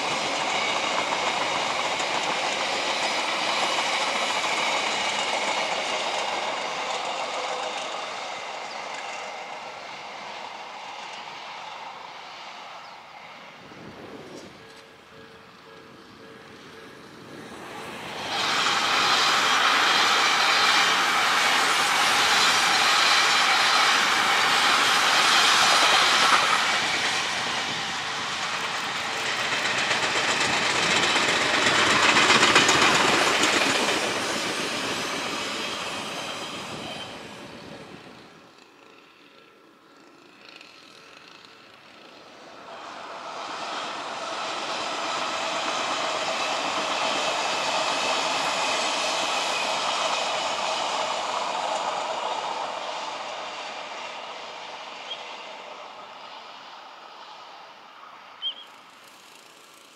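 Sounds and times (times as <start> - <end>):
electric train passing at speed: 0.0 - 59.9
wheels clattering over rail joints: 24.0 - 36.2.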